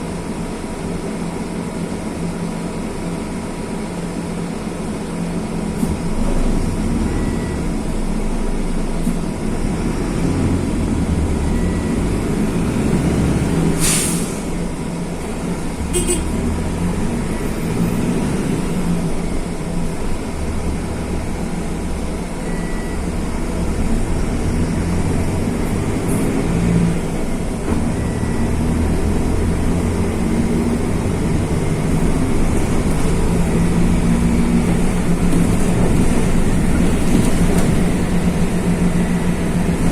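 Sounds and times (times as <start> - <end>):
bus diesel engine running: 0.0 - 39.9
air hiss: 13.8 - 14.5.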